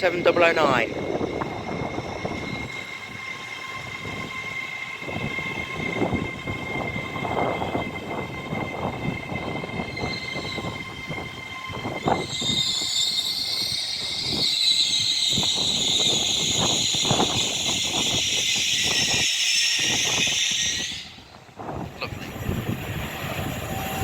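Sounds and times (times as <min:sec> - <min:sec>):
compressed air hissing from train: 0:12.0 - 0:24.0.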